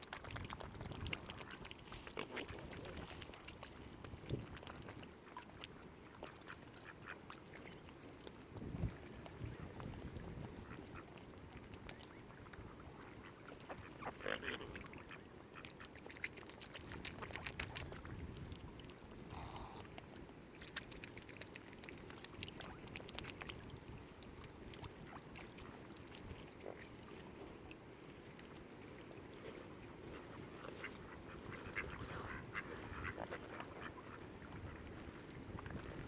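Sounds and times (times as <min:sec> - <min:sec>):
ducks calling softly: 0:04.5 - 0:08.2, 0:09.0 - 0:18.1, 0:29.2 - 0:35.0.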